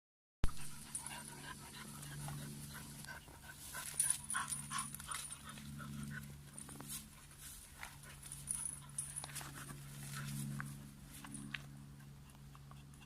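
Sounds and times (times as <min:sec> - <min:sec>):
steady low hum: 0:00.4 - 0:13.0
dog panting: 0:00.5 - 0:07.3.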